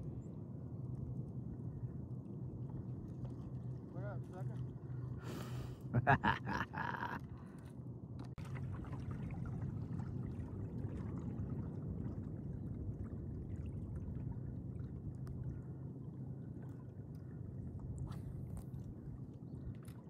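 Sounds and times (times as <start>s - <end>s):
water lapping against kayak hull: 2.4s - 5.8s, 7.2s - 20.0s
faint light ticks: 15.2s - 15.4s.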